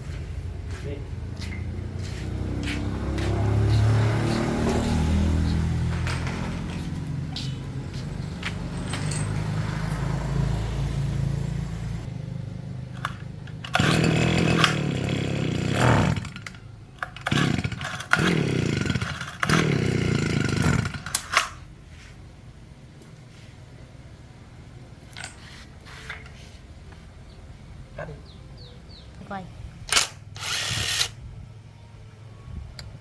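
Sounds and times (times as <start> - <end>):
chainsaw engine running: 13.5 - 16.6, 17.2 - 21.1, 30.4 - 31.2
chainsaw revving: 13.5 - 16.6, 17.2 - 21.2, 29.9 - 31.2.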